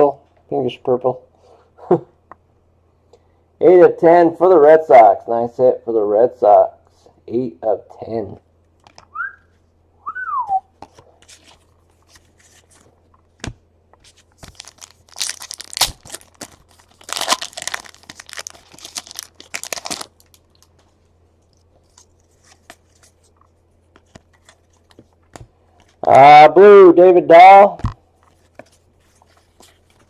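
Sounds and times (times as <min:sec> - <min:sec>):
card pack wrappers tearing: 0:14.1 - 0:20.7.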